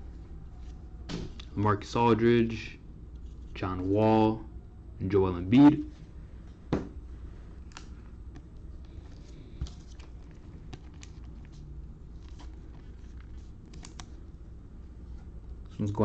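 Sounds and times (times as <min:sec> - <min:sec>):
low steady hum: 0:00.0 - 0:16.0
trading cards clicking: 0:12.2 - 0:14.2.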